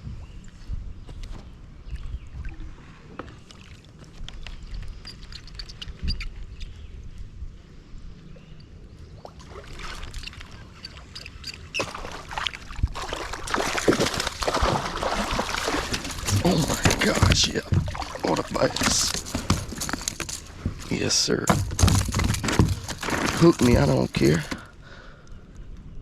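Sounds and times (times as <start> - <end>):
water splashing: 11.8 - 24.6
clicks and knocks on boat: 15.4 - 24.7.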